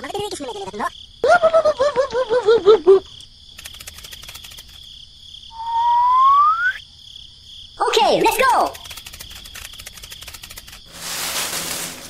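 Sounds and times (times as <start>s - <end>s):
cricket chirping: 0.0s - 12.0s
rising whistle glide: 5.6s - 6.8s
warbling cartoon babble: 7.9s - 9.0s.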